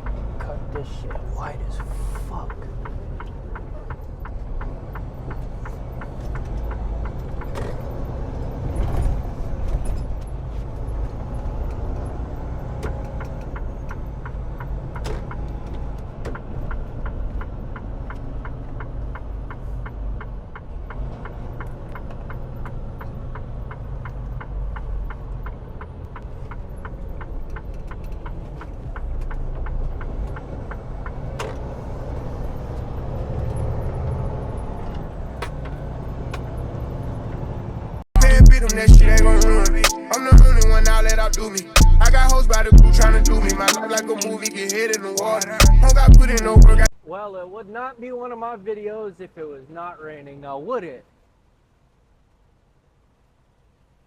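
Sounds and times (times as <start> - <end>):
steady ticking: 0.0 - 8.8, 9.9 - 33.0, 38.2 - 46.9
truck engine running: 0.0 - 46.9.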